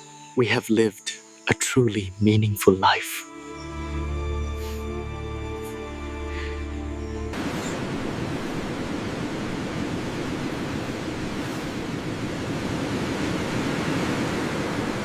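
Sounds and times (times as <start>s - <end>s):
music: 0.0s - 7.4s
steady rushing noise: 7.3s - 15.0s.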